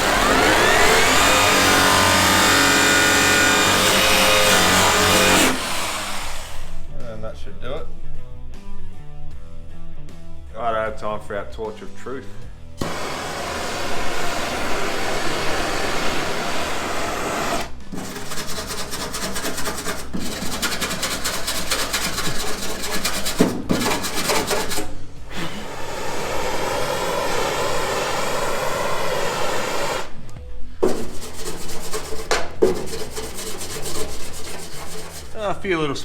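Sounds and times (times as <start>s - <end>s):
angle grinder grinding steel: 0.0s - 6.9s, 12.8s - 30.4s.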